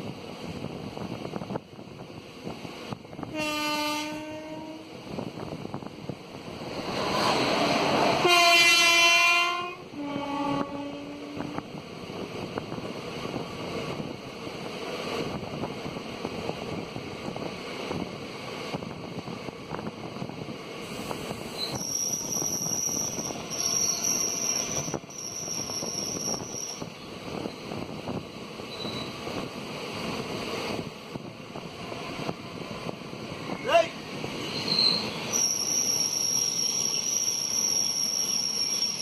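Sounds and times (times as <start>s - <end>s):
wind buffeting microphone: 0.0s - 3.4s, 4.9s - 8.2s, 10.4s - 23.6s, 25.8s - 34.5s
trains rumbling and rattling: 0.0s - 39.0s
high thin squeal: 21.5s - 26.9s, 28.7s - 29.2s, 34.4s - 39.0s.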